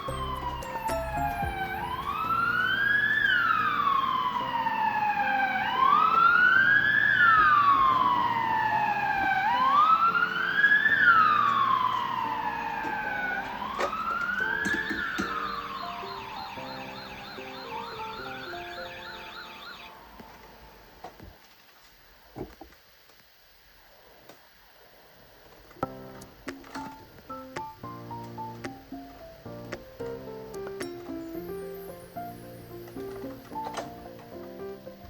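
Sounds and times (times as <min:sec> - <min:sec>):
wailing siren: 0:00.0 - 0:20.7, 0:31.3 - 0:34.3.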